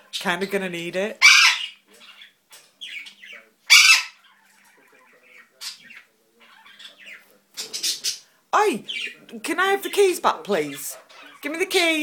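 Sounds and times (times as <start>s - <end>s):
parrot squawking: 1.1s - 9.2s, 9.8s - 12.0s.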